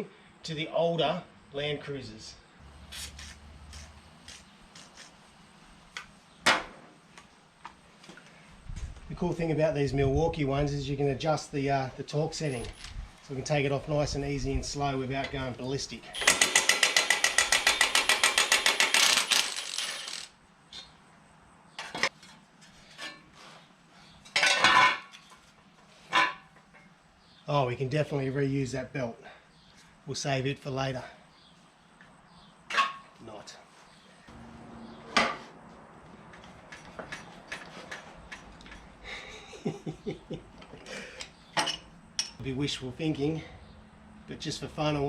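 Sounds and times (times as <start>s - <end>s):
impact wrench hammering: 16.2s - 20.2s.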